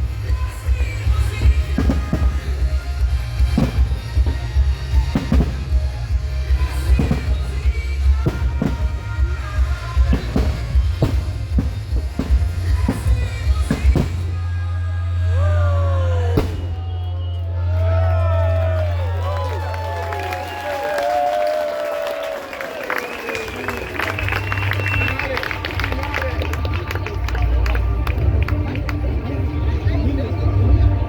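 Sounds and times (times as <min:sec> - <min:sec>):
fireworks bangs: 0:00.0 - 0:15.3, 0:16.3 - 0:17.5
music with heavy bass beat: 0:00.0 - 0:16.9
low bass drone: 0:00.0 - 0:18.6.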